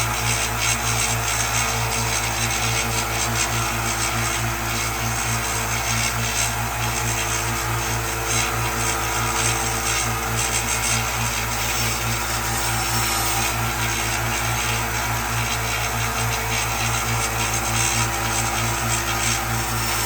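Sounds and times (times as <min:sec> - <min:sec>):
belt grinder motor humming: 0:00.0 - 0:20.0
steel grinding against belt: 0:08.3 - 0:20.0.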